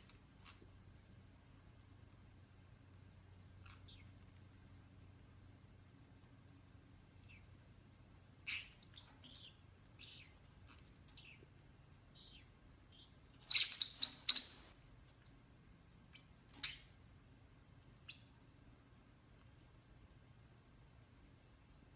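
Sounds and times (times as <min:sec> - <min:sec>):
bird chirping: 0:03.3 - 0:04.6, 0:07.0 - 0:17.1, 0:17.9 - 0:18.5.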